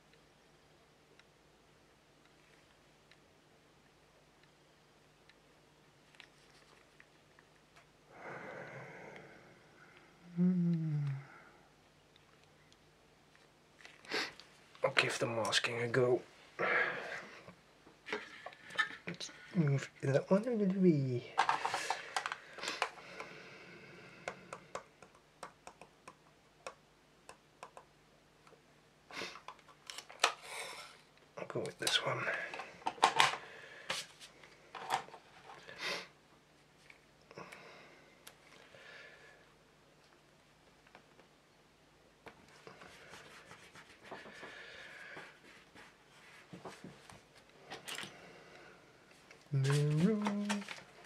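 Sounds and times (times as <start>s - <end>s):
soft rustle of handling: 5.9s - 7.9s, 42.2s - 48.2s, 49.0s - 51.0s.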